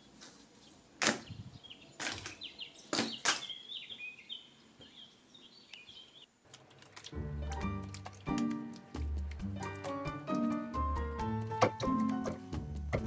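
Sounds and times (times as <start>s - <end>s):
small birds chirping: 0.0s - 6.4s
music: 7.1s - 13.0s.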